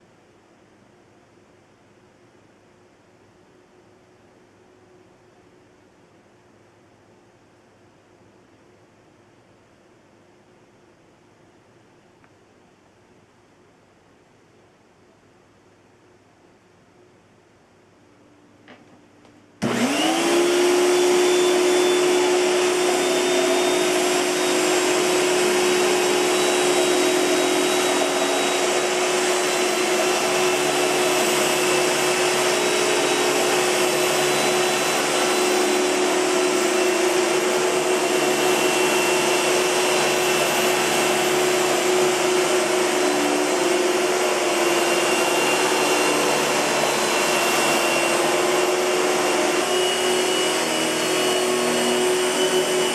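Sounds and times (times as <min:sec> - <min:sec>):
vacuum cleaner running: 0:19.6 - 0:52.9.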